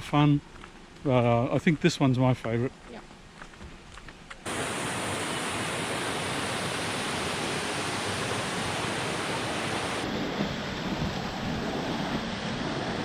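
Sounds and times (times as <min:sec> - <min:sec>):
water rushing through rock pools: 0:04.5 - 0:10.0.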